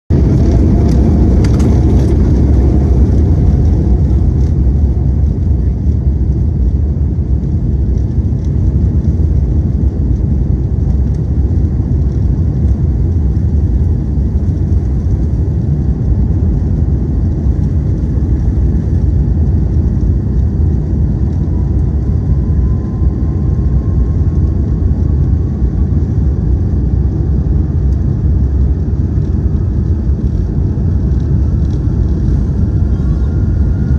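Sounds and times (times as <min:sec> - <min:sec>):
jet engines deep rumble: 0:00.0 - 0:33.9
faint rising whine: 0:10.6 - 0:33.9.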